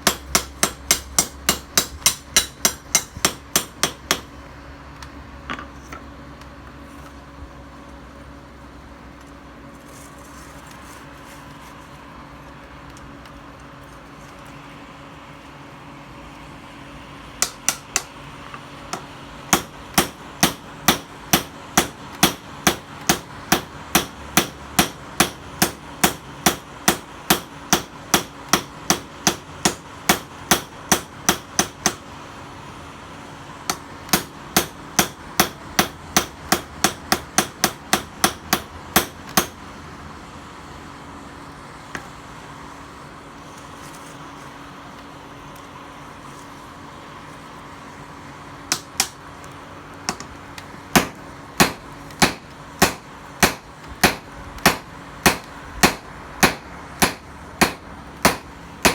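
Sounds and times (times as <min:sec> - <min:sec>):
hammer striking steel on anvil: 0:00.0 - 0:04.3, 0:17.4 - 0:18.1, 0:19.5 - 0:32.0, 0:33.7 - 0:39.6, 0:48.7 - 0:49.2, 0:51.0 - 0:58.9
steady hum: 0:00.0 - 0:58.9.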